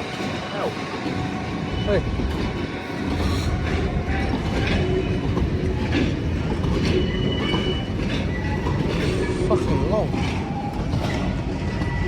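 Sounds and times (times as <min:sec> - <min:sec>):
train rumbling: 0:00.0 - 0:12.0
wheels clacking over rail joints: 0:03.2 - 0:12.0.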